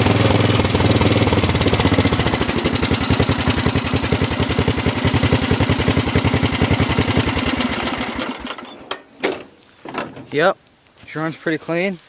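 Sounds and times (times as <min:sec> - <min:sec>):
engine winding down: 0:00.0 - 0:08.8
lawn tractor engine idling: 0:00.0 - 0:10.6.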